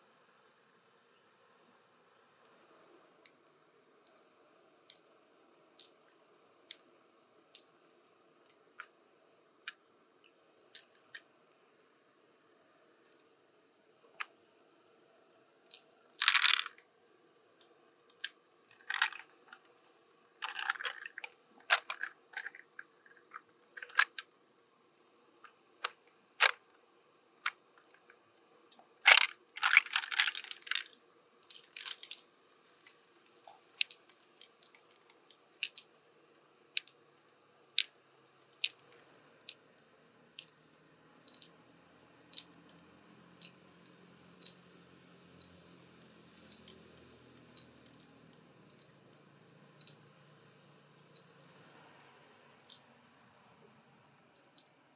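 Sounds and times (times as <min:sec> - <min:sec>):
mussel shell clicking and crunching: 0:10.8 - 0:11.2, 0:15.7 - 0:16.8, 0:18.1 - 0:19.7, 0:20.4 - 0:24.3, 0:25.4 - 0:26.6, 0:29.1 - 0:32.2, 0:33.6 - 0:34.9, 0:35.6 - 0:35.9, 0:36.8 - 0:37.0, 0:41.2 - 0:41.6, 0:42.3 - 0:42.5, 0:43.4 - 0:43.6, 0:46.4 - 0:46.8, 0:47.5 - 0:48.9.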